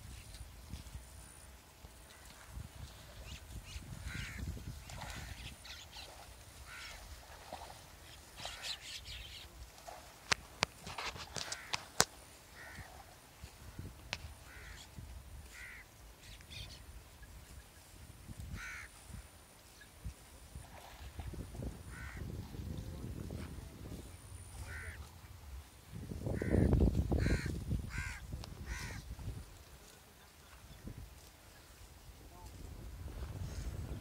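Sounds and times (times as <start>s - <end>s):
wind rumble on microphone: 0.0s - 1.5s, 2.1s - 7.8s, 12.6s - 15.7s, 16.6s - 19.3s, 20.0s - 29.8s, 30.6s - 34.0s
birds calling: 3.2s - 7.1s, 8.0s - 9.6s, 14.4s - 17.8s, 18.6s - 18.9s, 26.4s - 29.0s.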